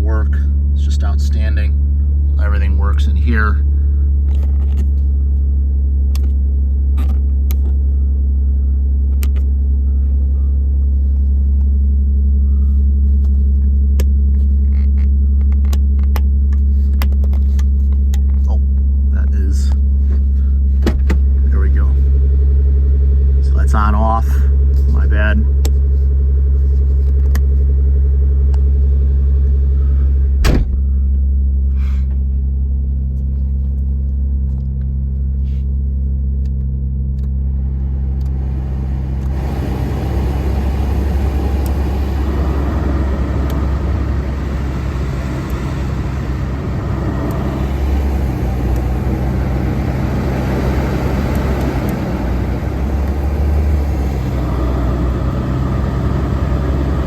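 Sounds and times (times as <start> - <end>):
car engine idling: 0.0 - 57.0
steady rushing noise: 37.6 - 57.0.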